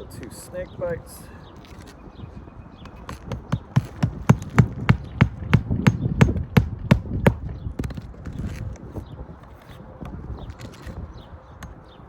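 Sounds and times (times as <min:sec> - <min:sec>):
hammer driving nails: 0:03.1 - 0:08.0.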